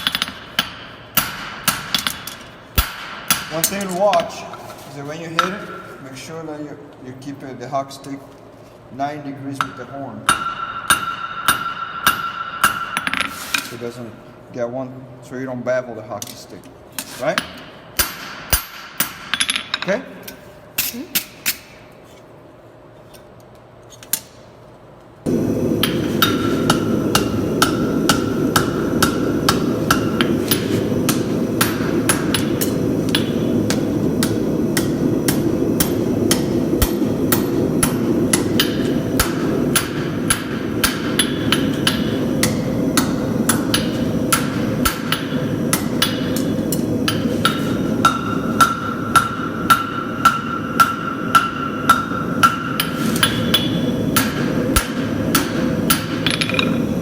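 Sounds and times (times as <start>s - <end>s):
hammer striking metal on anvil: 0.0s - 4.3s, 9.6s - 13.4s, 17.4s - 19.9s, 25.8s - 57.0s
low rushing noise: 25.3s - 40.8s.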